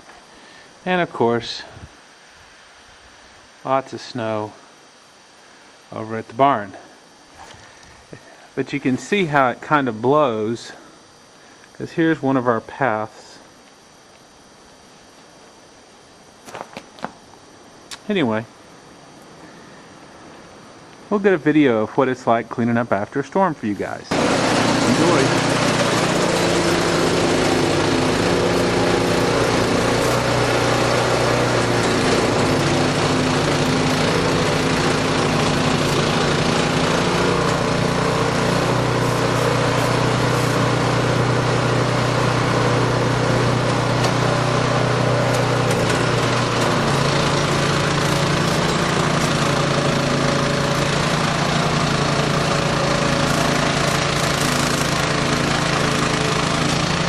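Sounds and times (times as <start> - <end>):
snow-clearing machine engine: 23.7 - 57.0
broad rushing noise: 24.1 - 42.8.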